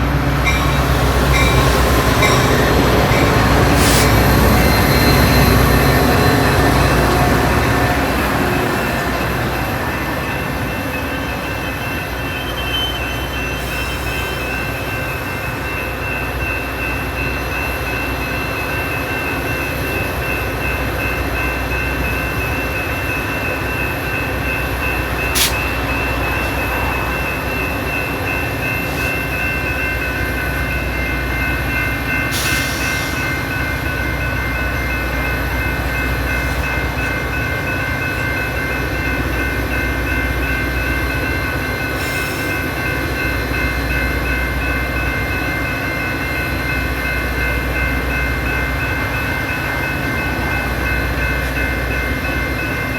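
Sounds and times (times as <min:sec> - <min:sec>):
train rumbling: 0:00.0 - 0:52.9.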